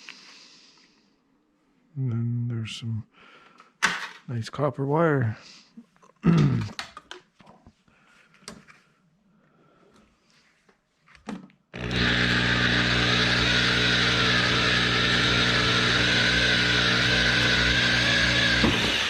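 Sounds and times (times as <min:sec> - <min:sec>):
electric drill running: 0:11.8 - 0:19.0.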